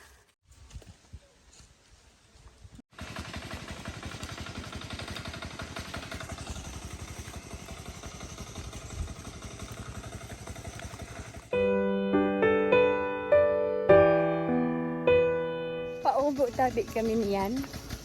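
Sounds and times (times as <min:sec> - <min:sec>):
small engine running: 0:02.9 - 0:11.8, 0:15.9 - 0:18.0.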